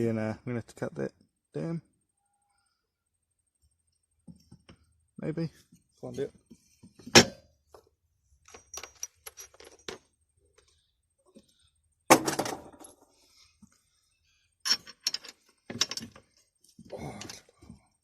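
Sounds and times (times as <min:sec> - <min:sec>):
metal bolt and bracket clinking: 0:08.4 - 0:10.1, 0:14.6 - 0:16.3.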